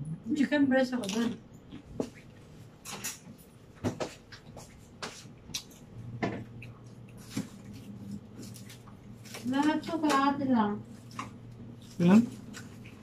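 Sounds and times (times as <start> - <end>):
person chewing food: 4.1 - 9.4.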